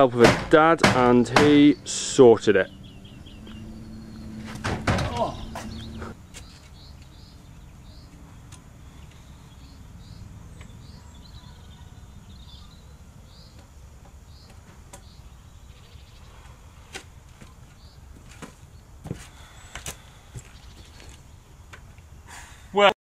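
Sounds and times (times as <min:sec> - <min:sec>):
low outdoor rumble: 0:00.0 - 0:22.3
small bird chirping: 0:02.6 - 0:21.4.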